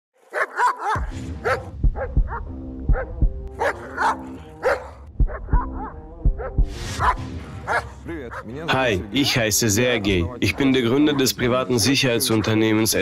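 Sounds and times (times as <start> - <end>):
dog barking: 0.3 - 8.6, 10.4 - 13.0
background music with deep hits: 1.0 - 9.2.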